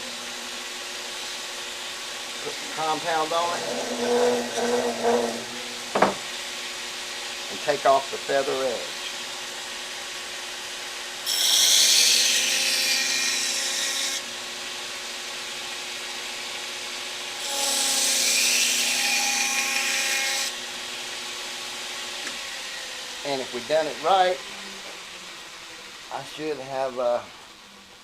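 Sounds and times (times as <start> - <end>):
belt grinder humming: 2.4 - 6.2
knife edge rubbing on belt: 3.5 - 5.7.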